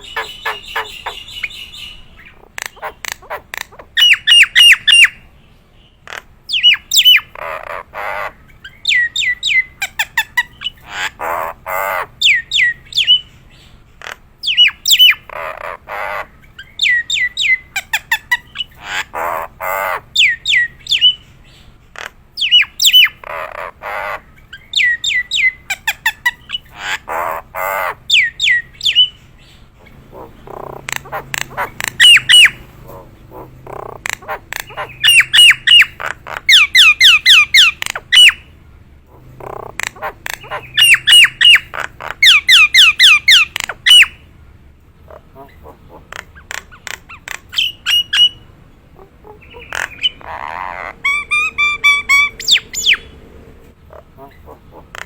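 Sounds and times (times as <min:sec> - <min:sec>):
myna squawks and whistles: 0:00.0 - 0:05.2, 0:30.2 - 0:38.5, 0:39.5 - 0:44.2.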